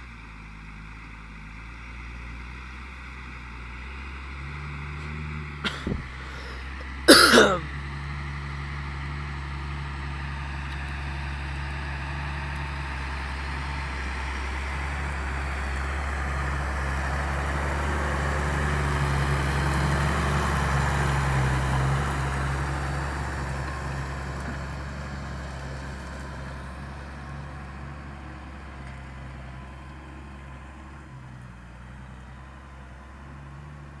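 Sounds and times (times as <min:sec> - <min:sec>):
tractor engine under load: 0:00.0 - 0:34.0.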